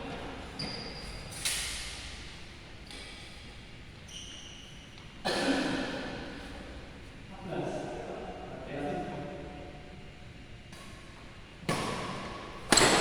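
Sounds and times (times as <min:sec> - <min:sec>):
shoes squeaking on court floor: 0:00.5 - 0:01.5, 0:02.8 - 0:05.2
racket striking shuttlecock: 0:11.6 - 0:13.0.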